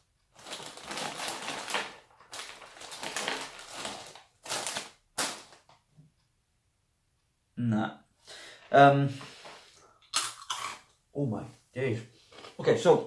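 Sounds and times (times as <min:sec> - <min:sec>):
snack packet opening: 0:00.4 - 0:05.6
crunchy snack being chewed: 0:10.1 - 0:10.9.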